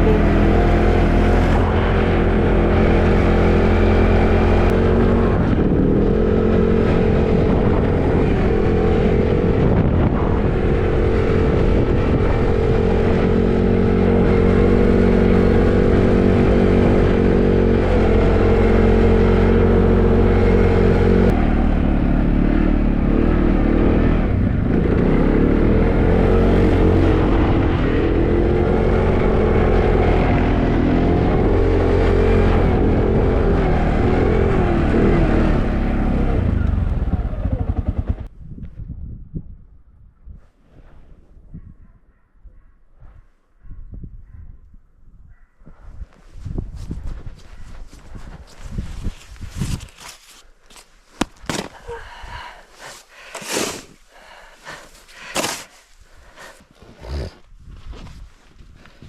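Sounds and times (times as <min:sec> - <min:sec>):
tractor engine pushing snow plow: 0:00.0 - 0:38.3, 0:49.9 - 0:56.9.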